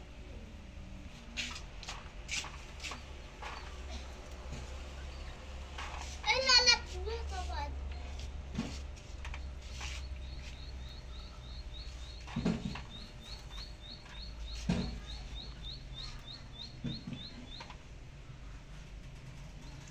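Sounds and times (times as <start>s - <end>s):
small bird chirping: 9.4s - 17.8s.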